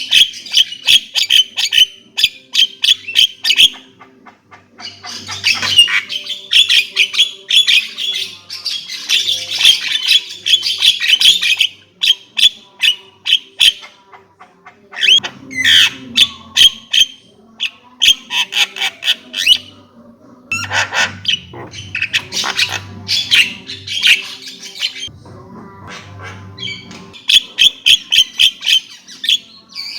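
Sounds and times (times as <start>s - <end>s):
myna chattering and squawking: 0.0s - 19.8s, 20.5s - 29.9s.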